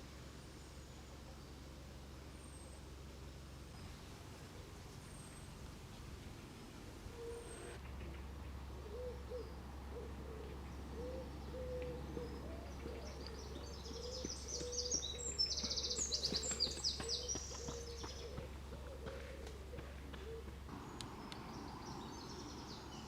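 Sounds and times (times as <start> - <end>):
steady low hum: 0.0 - 23.0
low cooing notes: 7.0 - 14.8
songbird trilling: 8.9 - 18.4.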